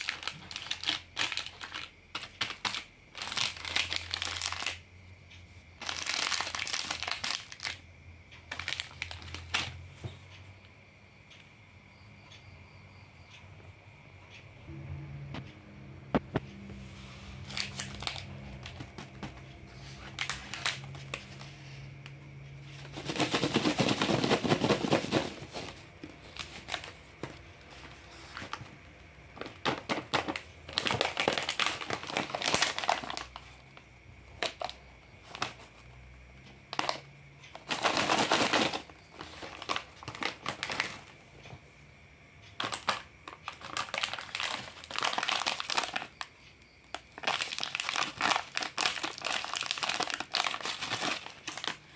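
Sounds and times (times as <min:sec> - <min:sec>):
plastic wrappers crinkling: 0:00.0 - 0:04.8, 0:05.8 - 0:07.8, 0:08.5 - 0:09.8, 0:17.4 - 0:21.8, 0:22.7 - 0:33.7, 0:34.3 - 0:35.8, 0:36.7 - 0:41.2, 0:42.6 - 0:46.2, 0:46.9 - 0:51.9.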